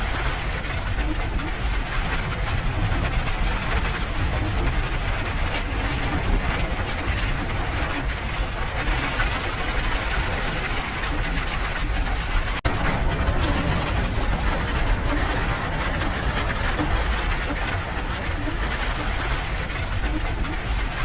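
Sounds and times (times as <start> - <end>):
deep low rumble: 12.4 - 21.0
steady rain hiss: 12.7 - 20.5.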